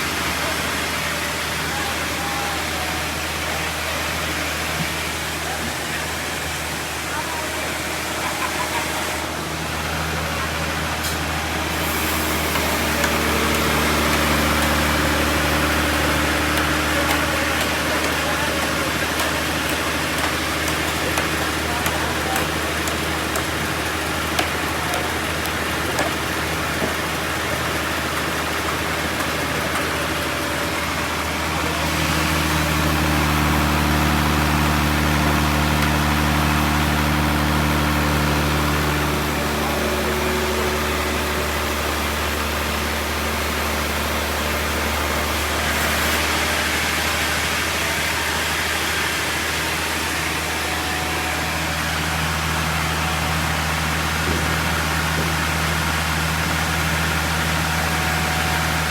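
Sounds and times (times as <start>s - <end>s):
sawmill engine hum: 0.0s - 58.9s
saw cutting through log: 11.4s - 50.7s.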